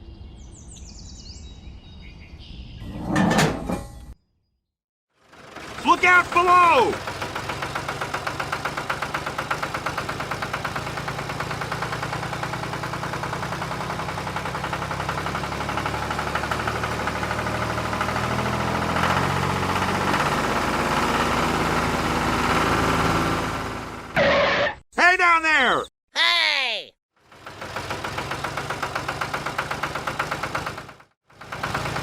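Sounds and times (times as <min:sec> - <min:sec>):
small model tractor engine chugging: 0:05.2 - 0:18.2, 0:27.2 - 0:32.0.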